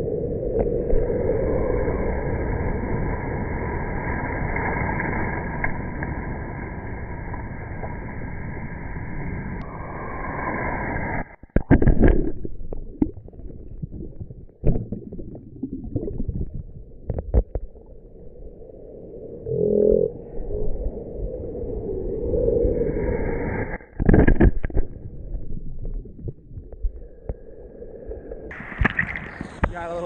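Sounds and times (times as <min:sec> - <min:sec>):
ocean surf crashing: 0:01.1 - 0:11.3, 0:28.5 - 0:30.0.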